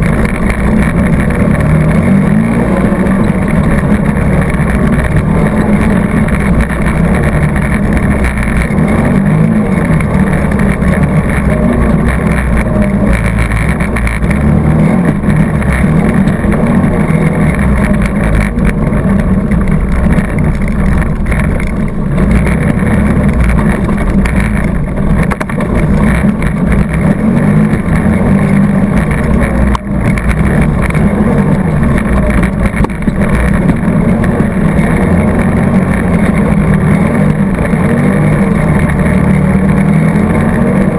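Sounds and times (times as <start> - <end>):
atv engine running under load: 0.0 - 40.9.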